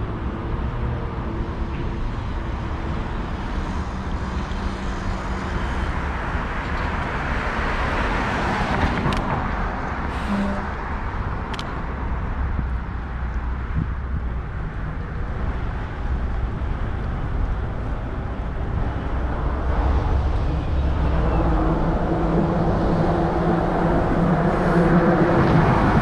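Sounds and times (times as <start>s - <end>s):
traffic rumble: 0.0s - 26.0s.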